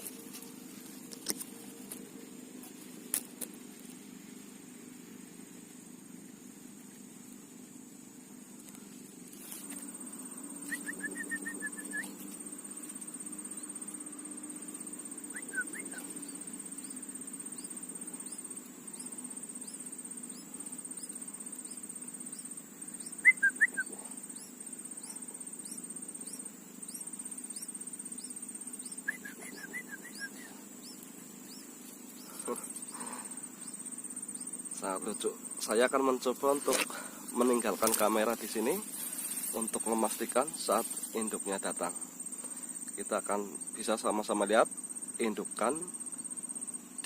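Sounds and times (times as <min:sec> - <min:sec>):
insect drone: 0:00.0 - 0:47.0
small bird chirping: 0:09.4 - 0:41.4.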